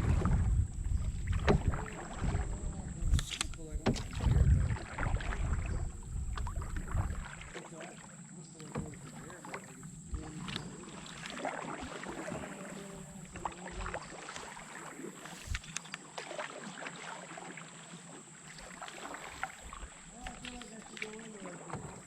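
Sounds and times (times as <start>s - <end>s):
knocks on canoe: 0.0s - 2.6s, 3.7s - 4.6s, 8.6s - 10.7s, 21.6s - 22.0s
paddle strokes in water: 0.0s - 22.0s
small splashes: 0.0s - 22.0s.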